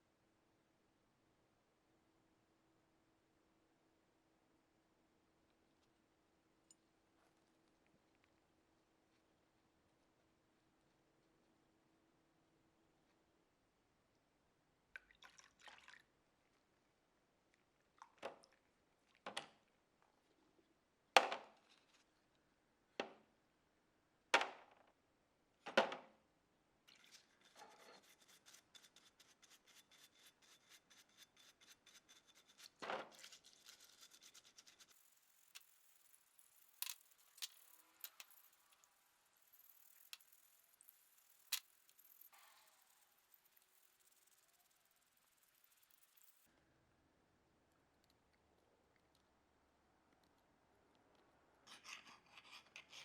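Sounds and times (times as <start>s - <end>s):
hand tool scraping strokes: 27.0s - 38.5s, 51.7s - 53.0s.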